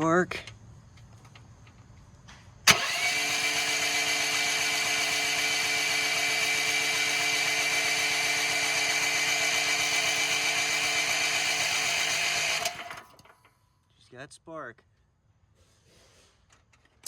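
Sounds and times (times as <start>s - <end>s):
electric starter cranking engine: 2.7s - 13.6s.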